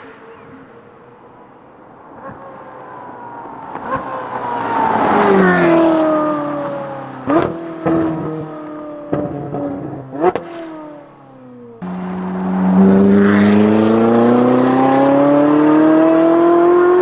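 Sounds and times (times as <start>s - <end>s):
sports car engine driving past: 0.0s - 17.0s
sharp exhaust bursts: 11.8s - 15.6s.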